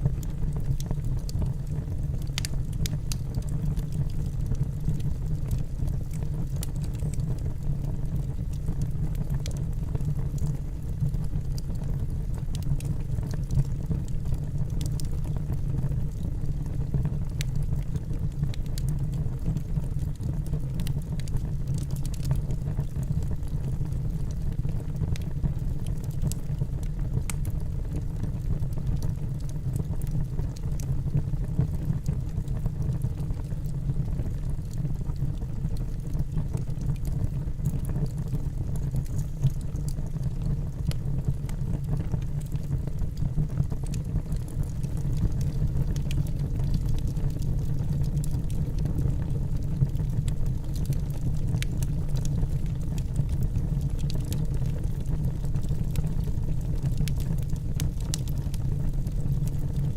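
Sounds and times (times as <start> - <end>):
logs crackling and popping: 0.0 - 59.9
fire roaring: 31.4 - 59.7.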